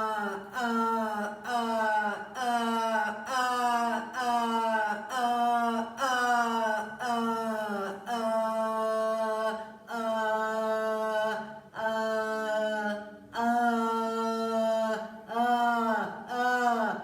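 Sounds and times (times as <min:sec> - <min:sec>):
woman chanting held tones: 0:00.0 - 0:17.0.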